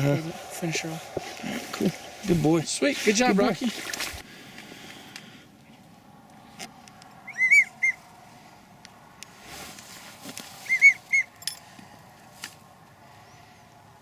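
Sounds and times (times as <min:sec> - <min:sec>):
duck whistle call: 0:07.3 - 0:08.0, 0:10.7 - 0:11.3
soft clicks and rustles: 0:08.8 - 0:10.7.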